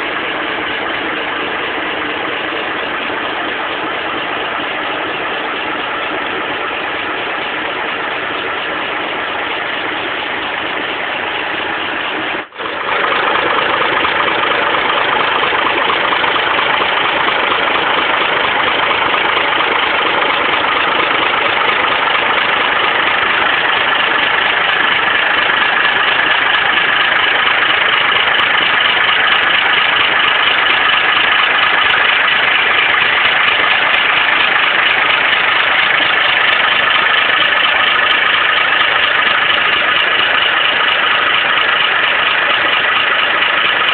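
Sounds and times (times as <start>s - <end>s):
tractor engine idling: 0.0s - 43.9s.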